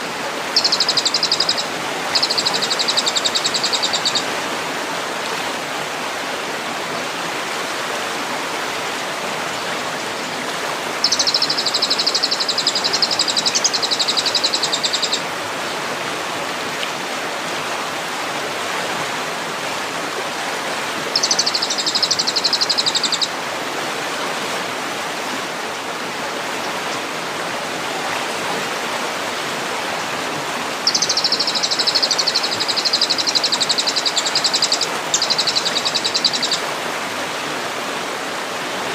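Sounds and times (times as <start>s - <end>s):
running water: 0.0s - 38.9s
songbird buzzy trills: 0.5s - 4.3s, 11.0s - 15.2s, 21.1s - 23.3s, 30.8s - 36.6s.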